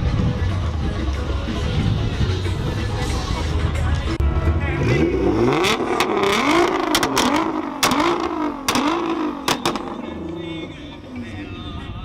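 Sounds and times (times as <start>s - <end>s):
car engine revving: 0.3s - 11.5s
sharp exhaust cracks: 5.7s - 10.2s.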